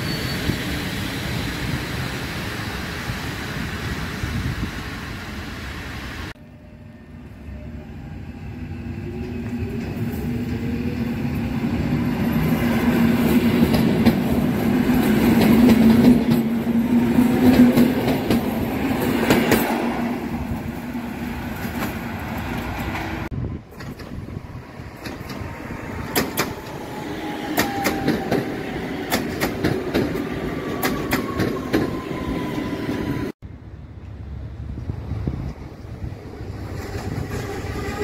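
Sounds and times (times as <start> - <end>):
train wheels rumbling on rails: 8.5 - 38.0.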